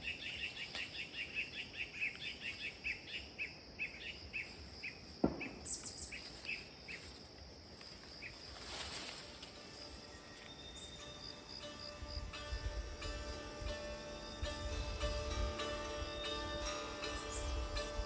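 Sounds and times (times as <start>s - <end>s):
bird chirping: 0.0s - 7.2s, 9.8s - 18.0s
insect drone: 0.0s - 18.0s
sharp knock: 5.2s - 5.6s.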